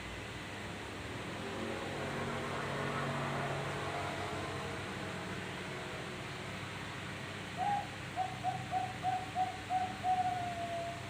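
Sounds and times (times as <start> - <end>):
dove cooing: 7.6 - 11.0.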